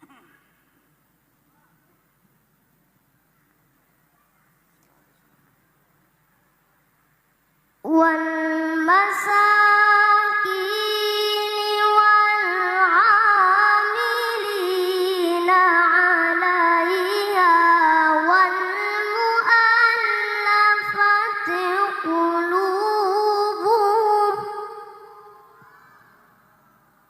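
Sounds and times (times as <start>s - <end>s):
child chanting recitation: 7.8s - 26.2s.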